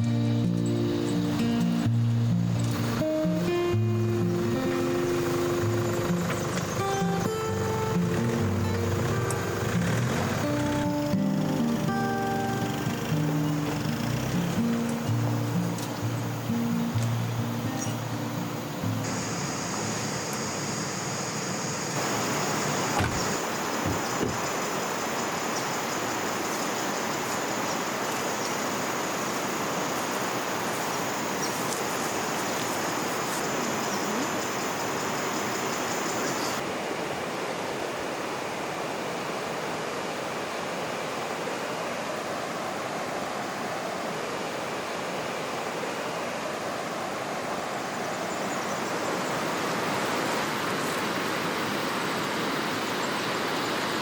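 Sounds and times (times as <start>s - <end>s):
river water rushing: 0.0s - 54.0s
high steady buzz: 1.4s - 24.7s.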